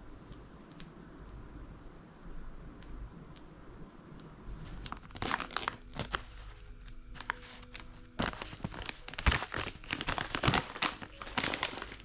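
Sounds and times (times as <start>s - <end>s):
handling crackles and rustles: 4.1s - 12.0s.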